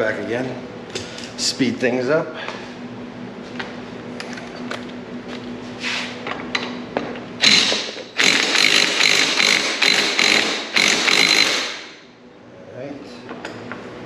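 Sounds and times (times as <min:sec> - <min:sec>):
impact wrench running: 0:07.4 - 0:12.1.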